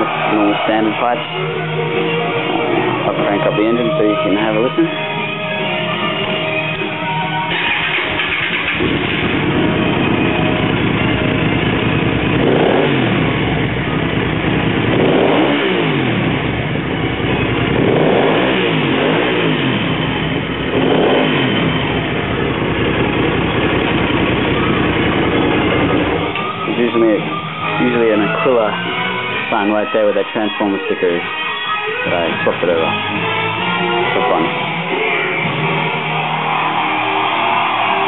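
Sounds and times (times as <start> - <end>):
motorcycle engine idling and revving: 7.5 - 31.2.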